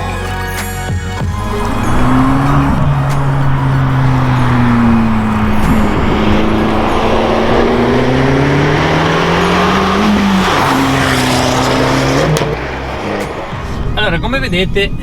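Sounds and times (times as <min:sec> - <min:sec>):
car engine accelerating: 0:01.2 - 0:15.0.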